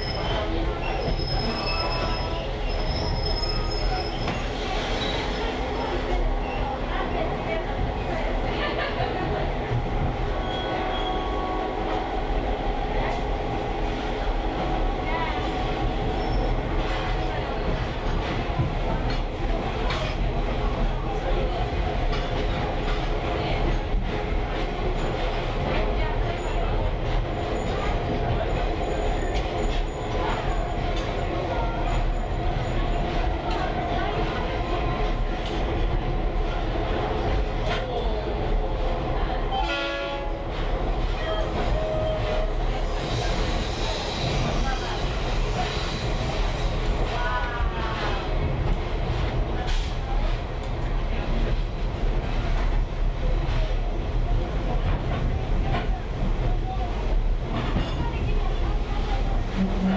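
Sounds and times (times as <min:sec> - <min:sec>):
train rumbling on rails: 0:00.0 - 0:59.9
locomotive horn blast: 0:39.6 - 0:40.5.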